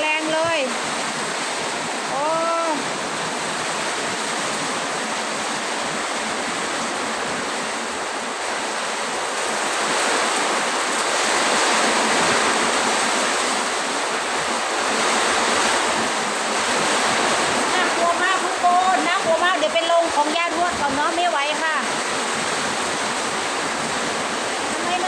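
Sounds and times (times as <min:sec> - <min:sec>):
heavy rain in wind: 0:00.0 - 0:25.0.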